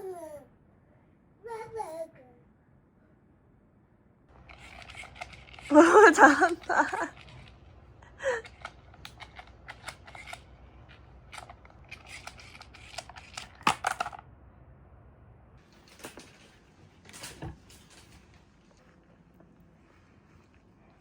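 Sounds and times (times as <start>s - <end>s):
baby vocalizing: 0.0s - 0.5s.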